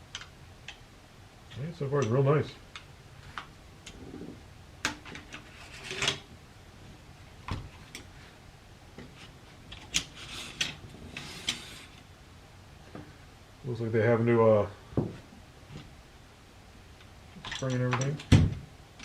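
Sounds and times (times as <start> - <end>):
metal scraping on metal: 5.4 - 6.2.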